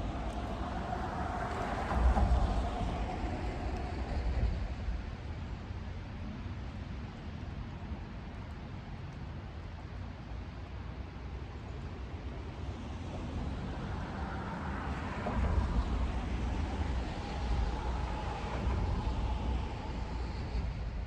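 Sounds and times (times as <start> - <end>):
low rumble: 0.0 - 6.5, 12.5 - 21.0.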